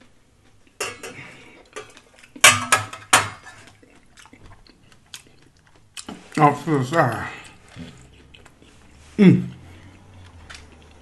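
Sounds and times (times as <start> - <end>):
crunching tortilla chips: 3.7 - 11.0.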